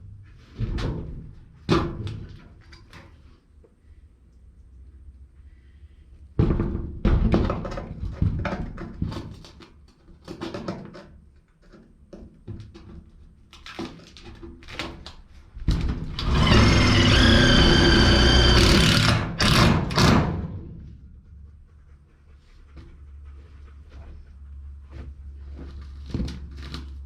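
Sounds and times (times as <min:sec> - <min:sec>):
drill screeching through sheet steel: 0:16.2 - 0:20.1.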